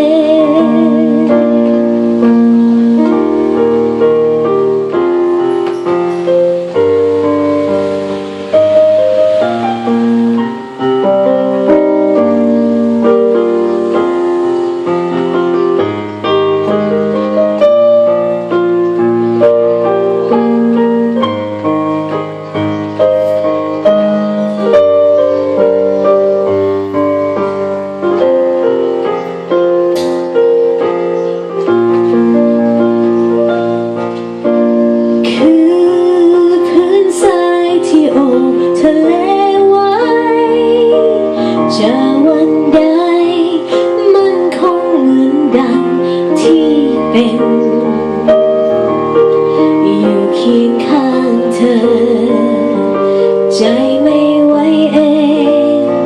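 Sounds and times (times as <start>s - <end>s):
woman singing: 0.0s - 2.4s, 35.2s - 48.6s, 49.6s - 56.0s
piano ballad chords: 0.0s - 56.0s.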